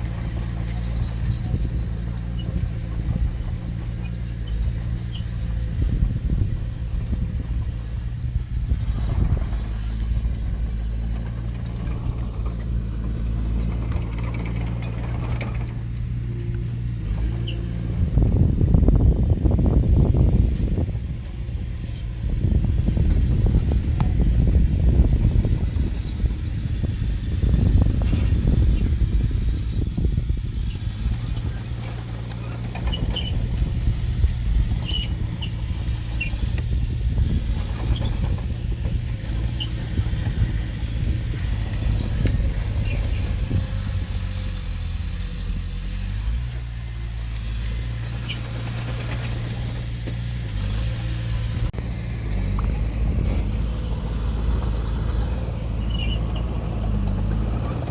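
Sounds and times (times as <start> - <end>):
heavy diesel engine running: 0.0 - 57.9
short high squeaks: 30.7 - 33.6, 34.8 - 44.0, 55.8 - 56.6.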